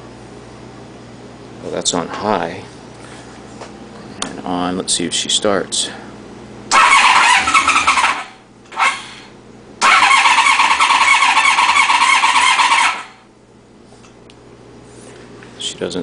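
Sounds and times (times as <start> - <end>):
motorcycle engine cranking: 6.7 - 9.0, 9.8 - 13.0.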